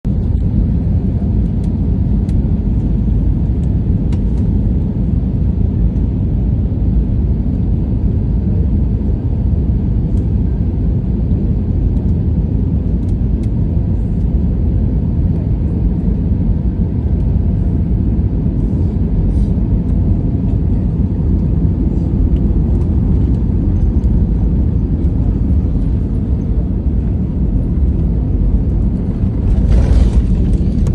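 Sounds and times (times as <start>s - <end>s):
airliner landing rumble: 0.0s - 30.9s
loud rush of air: 28.9s - 30.9s.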